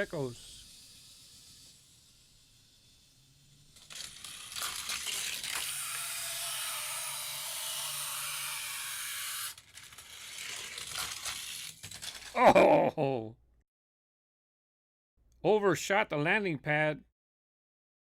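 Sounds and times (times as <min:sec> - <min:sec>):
toy car clattering down track: 0:00.0 - 0:12.4
toy car rattling: 0:00.0 - 0:12.4.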